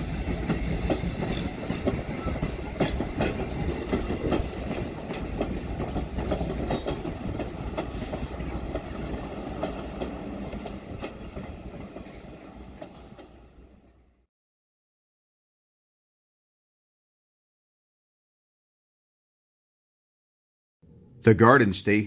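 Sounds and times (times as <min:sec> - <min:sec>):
wheels clicking over rails: 0:00.0 - 0:13.6
train rumbling on track: 0:00.0 - 0:14.2.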